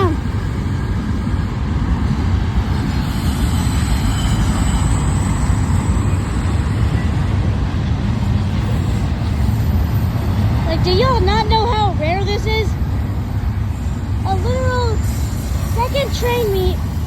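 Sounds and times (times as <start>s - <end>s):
train wheels rumbling on rail: 0.0s - 17.0s
high-pitched squeal: 2.4s - 7.5s, 13.0s - 17.0s.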